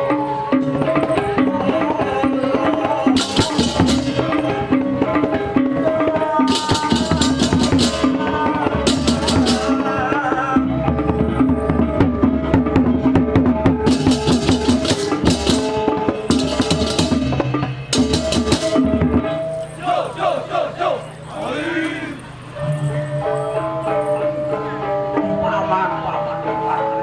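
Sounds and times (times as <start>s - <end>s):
gongs and drums playing: 3.1s - 5.9s, 6.5s - 10.8s, 12.6s - 19.6s
clashing cymbals: 3.2s - 4.9s, 6.5s - 10.2s, 13.9s - 19.0s.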